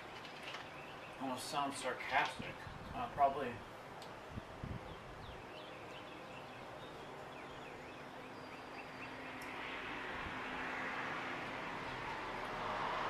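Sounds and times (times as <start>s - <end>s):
bird chirping: 0.4s - 1.4s, 4.8s - 9.5s
vehicle approaching: 6.0s - 13.0s.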